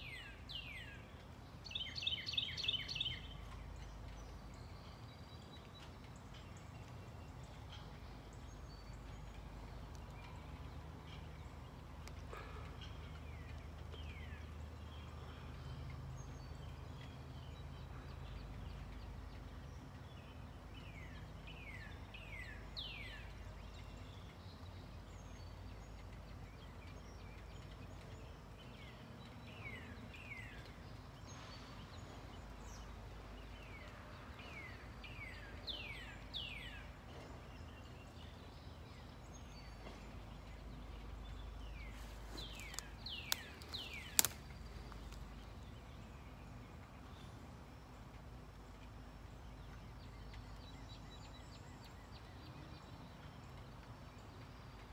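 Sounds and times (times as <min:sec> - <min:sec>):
songbird singing: 0:00.0 - 0:54.9
sharp clicks: 0:42.5 - 0:45.2.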